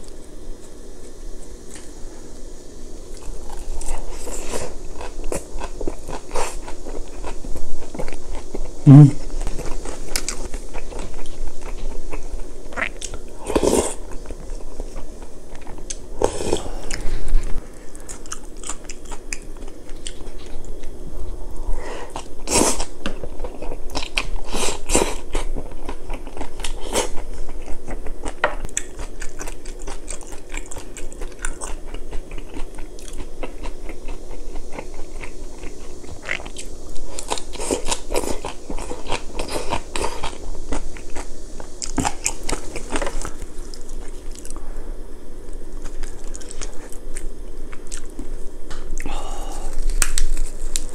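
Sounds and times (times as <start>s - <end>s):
chewing and crunching food: 0.0s - 2.0s, 3.0s - 44.7s, 45.4s - 50.9s.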